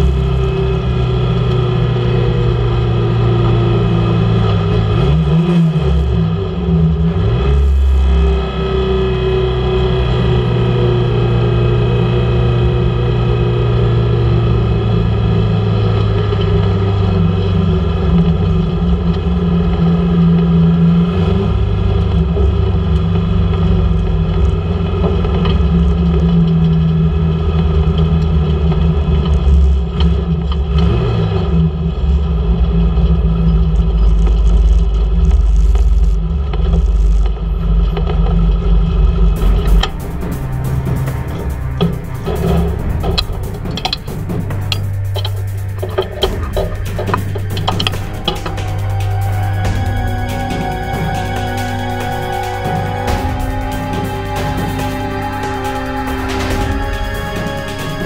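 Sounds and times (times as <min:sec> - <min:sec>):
race car engine running: 0:00.0 - 0:58.0
rattling noise: 0:33.7 - 0:58.0.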